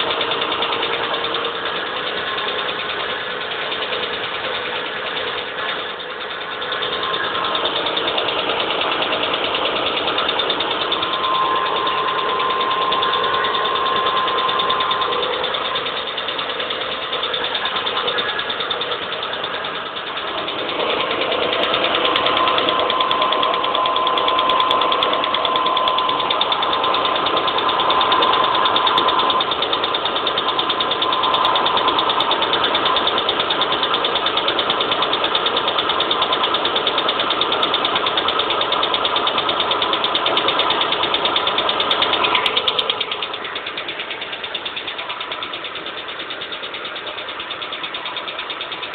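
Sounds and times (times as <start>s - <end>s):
car engine running: 0.0s - 48.9s
continuous mechanical noise: 0.0s - 48.9s.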